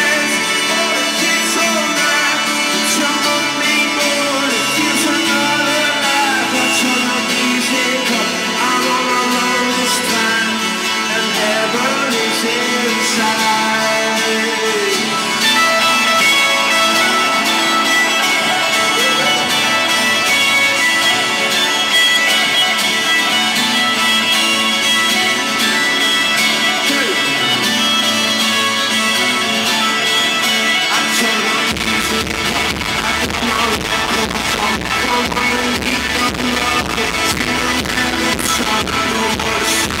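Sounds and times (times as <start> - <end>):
guitars strumming: 0.0 - 40.0
deep bass guitar: 31.7 - 40.0.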